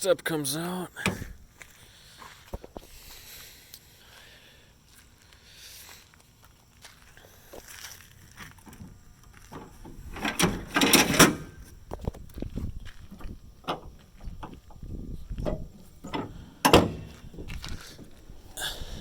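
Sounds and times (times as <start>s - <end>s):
tailgate step clattering: 8.8s - 11.6s, 13.2s - 18.2s.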